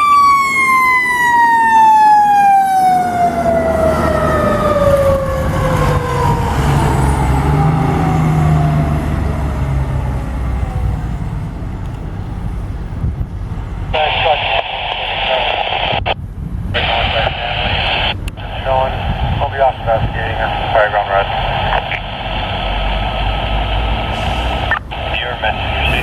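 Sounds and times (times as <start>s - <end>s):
fire truck siren winding down: 0.0s - 11.6s.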